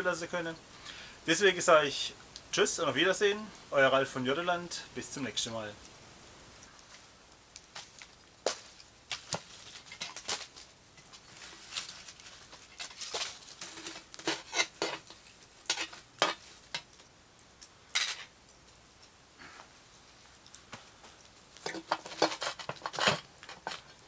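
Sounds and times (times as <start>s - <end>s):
metal cookware clinking and scraping: 12.7s - 15.1s, 18.0s - 18.3s.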